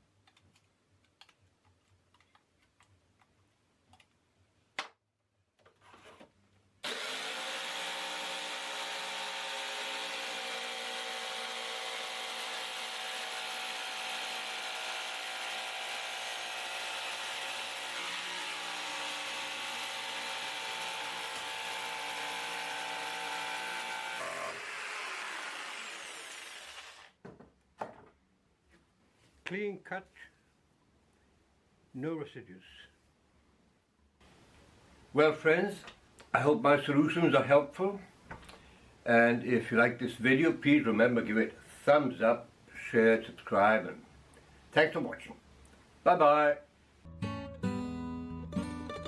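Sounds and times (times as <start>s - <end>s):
jigsaw cutting plastic: 6.8s - 27.2s.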